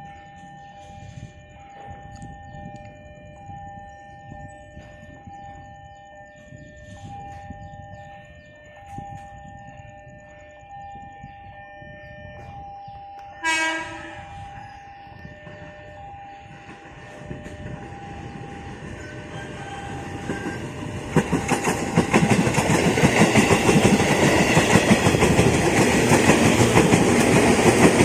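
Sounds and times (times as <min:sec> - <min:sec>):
level crossing warning alarm: 0:00.0 - 0:28.0
train horn blast: 0:13.2 - 0:16.0.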